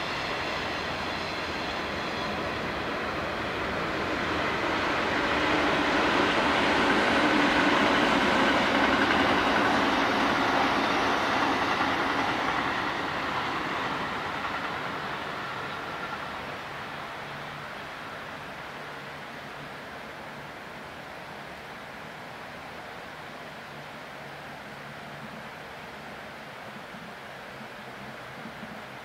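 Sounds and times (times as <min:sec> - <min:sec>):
freight train rumbling past: 0:00.0 - 0:29.0.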